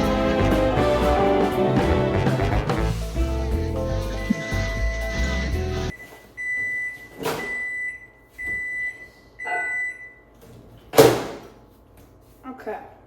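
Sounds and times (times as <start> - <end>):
microwave oven beeping: 3.9 - 10.4.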